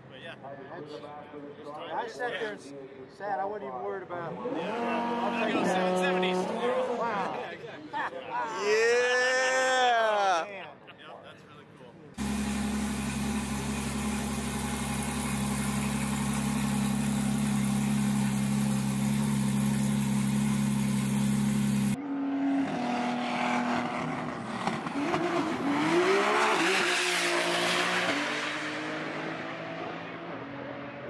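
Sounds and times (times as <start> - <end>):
humming drone: 12.2 - 22.0
car accelerating hard: 12.2 - 31.0.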